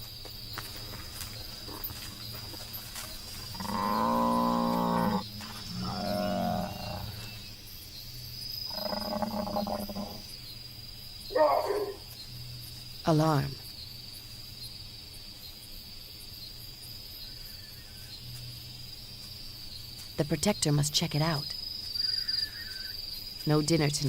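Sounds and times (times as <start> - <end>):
insect chirring: 0.0 - 24.0
buffalo bellowing: 3.4 - 7.4, 11.3 - 12.1.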